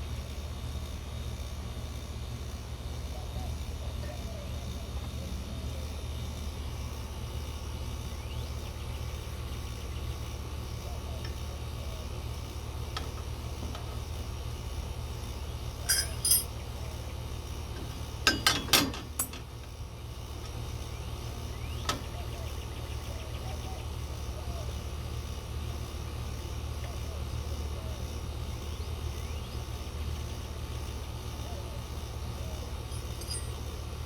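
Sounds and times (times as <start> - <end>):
steady low hum: 0.0 - 34.0
metallic clinks of hardware: 15.8 - 16.5, 18.2 - 19.5, 32.9 - 33.8.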